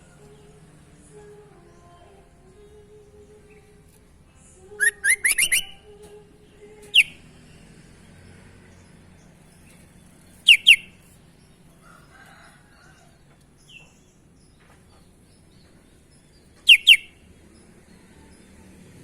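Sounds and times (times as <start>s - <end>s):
bird calling downward notes: 4.6s - 7.4s, 16.6s - 17.2s.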